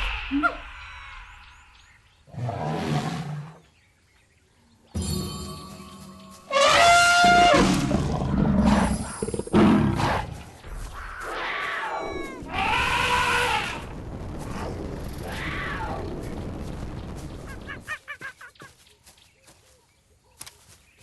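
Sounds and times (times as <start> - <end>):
wild animal roars: 6.7 - 10.4.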